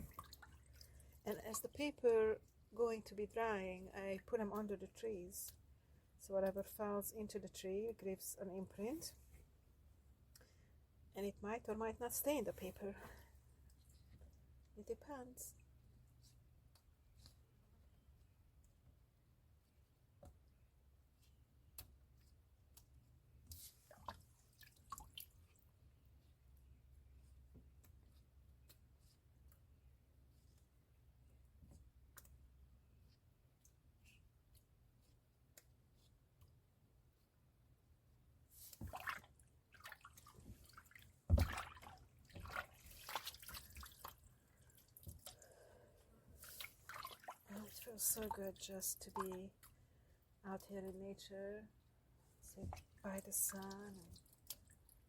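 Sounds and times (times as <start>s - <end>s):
faint water drips: 0.0s - 1.8s, 21.7s - 29.2s, 38.6s - 50.2s, 52.4s - 55.0s.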